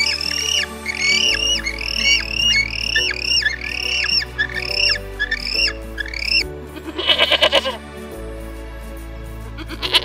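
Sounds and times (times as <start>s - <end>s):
penguin squawking: 0.0s - 6.4s
background music with low chords: 0.0s - 10.0s.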